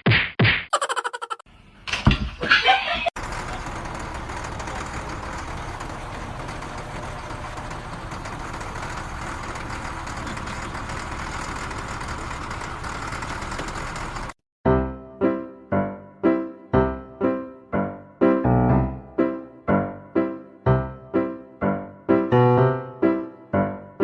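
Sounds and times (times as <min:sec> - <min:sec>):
engine rumble: 0:03.2 - 0:14.4.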